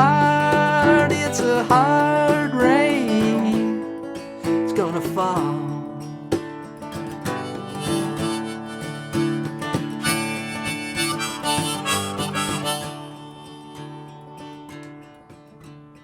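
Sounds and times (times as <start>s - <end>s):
harmonica playing: 0.0s - 1.7s, 7.0s - 15.0s
acoustic guitar strumming: 0.0s - 16.0s.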